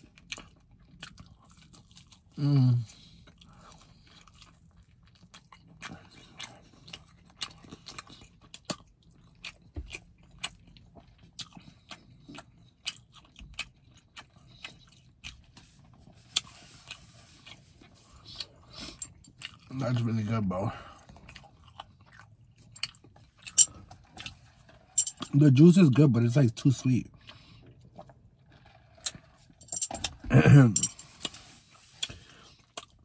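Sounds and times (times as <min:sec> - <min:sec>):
person chewing: 0:00.0 - 0:20.0, 0:20.7 - 0:25.0, 0:27.1 - 0:30.2, 0:31.0 - 0:33.0.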